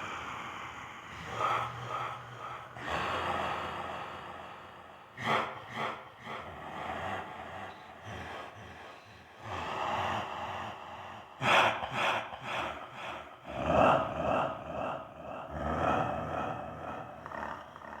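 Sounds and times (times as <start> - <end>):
person snarling like a werewolf: 5.2 - 18.0.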